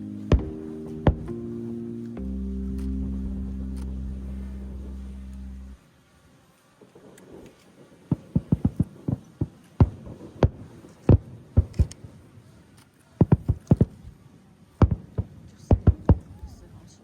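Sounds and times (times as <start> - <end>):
distant fireworks booms: 0.3 - 1.4, 6.8 - 12.1, 13.2 - 14.1, 14.8 - 16.6.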